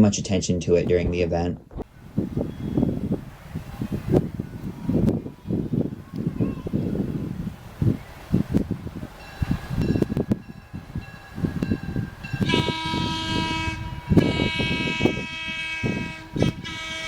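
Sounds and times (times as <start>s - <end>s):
locomotive horn blasts: 10.0s - 17.0s.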